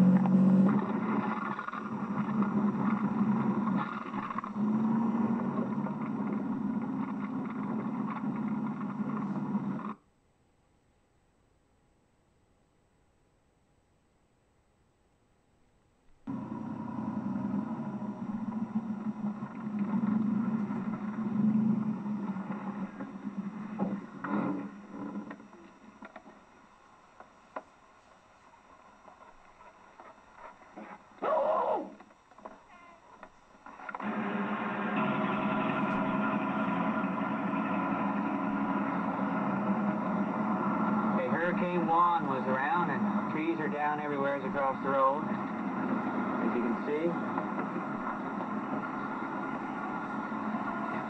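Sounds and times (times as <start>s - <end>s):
road noise from inside vehicle: 0.0s - 10.0s, 16.2s - 26.0s, 33.6s - 51.0s
vehicle engine hum: 0.0s - 10.0s, 16.2s - 27.7s, 31.9s - 51.0s.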